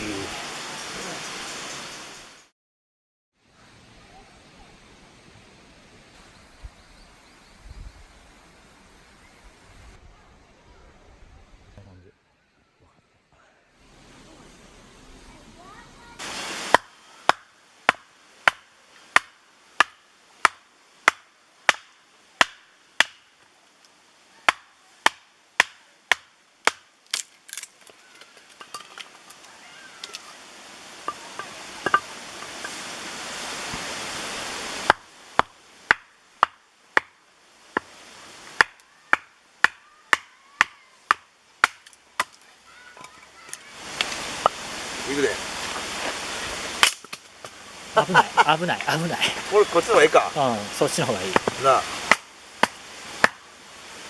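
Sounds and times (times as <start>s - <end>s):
steady hiss: 0.0s - 2.5s, 3.5s - 12.1s, 13.7s - 54.0s
axe chopping wood: 16.7s - 23.2s, 24.5s - 27.2s, 34.9s - 37.2s, 38.6s - 42.4s, 46.8s - 47.6s, 51.1s - 53.4s.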